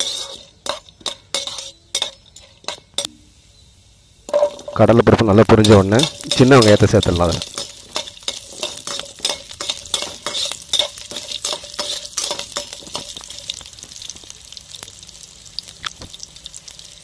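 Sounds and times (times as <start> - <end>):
metal spoon clinking on pan: 0.0 - 3.2, 4.3 - 4.9, 5.6 - 13.7
food sizzling in hot oil: 0.0 - 17.0.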